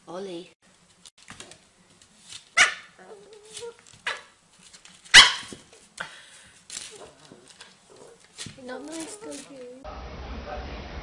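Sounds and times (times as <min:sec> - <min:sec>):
puppy barking: 0:02.6 - 0:04.4, 0:05.1 - 0:05.6.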